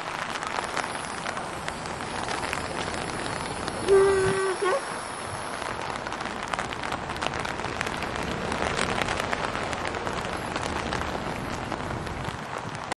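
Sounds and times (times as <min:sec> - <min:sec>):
heavy rain patter: 0:00.0 - 0:13.0
low wind rumble: 0:00.0 - 0:13.0.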